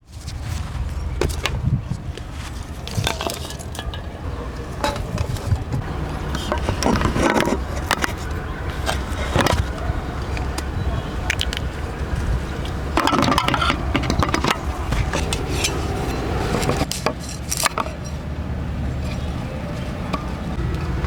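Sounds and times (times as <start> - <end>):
steady low rumble: 0.0 - 16.9
dishes clinking and scraping: 2.5 - 18.4.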